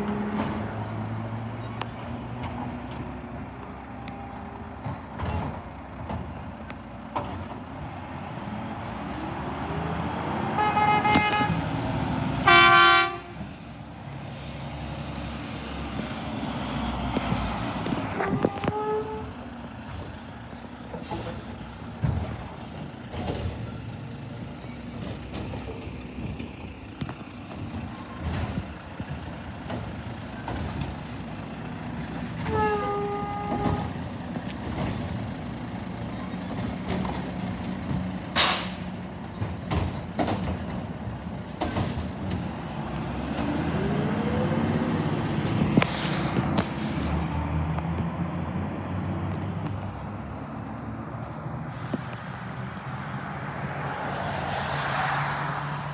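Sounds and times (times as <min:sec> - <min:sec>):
diesel truck engine running: 0:00.0 - 0:51.7
air brake hiss: 0:38.4 - 0:39.0.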